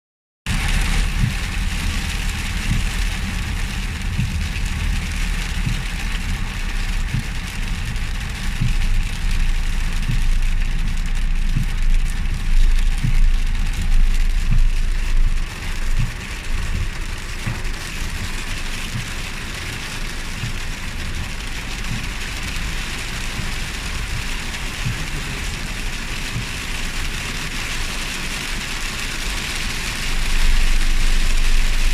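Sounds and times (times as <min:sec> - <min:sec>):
hail thumps: 0:00.5 - 0:09.3, 0:11.4 - 0:19.7, 0:20.3 - 0:22.4
low rumble: 0:00.5 - 0:28.0, 0:29.3 - 0:31.9
rain hissing on surfaces: 0:00.5 - 0:31.9.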